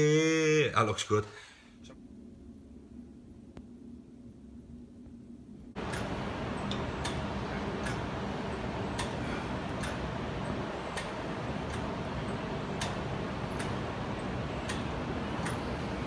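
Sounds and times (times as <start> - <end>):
steady background noise: 1.8 - 16.0.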